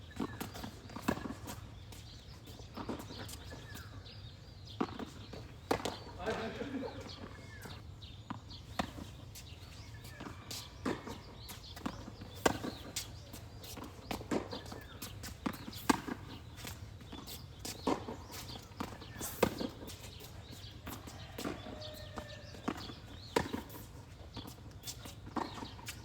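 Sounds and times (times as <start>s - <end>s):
ball bouncing on court: 10.1s - 16.4s, 20.9s - 23.8s.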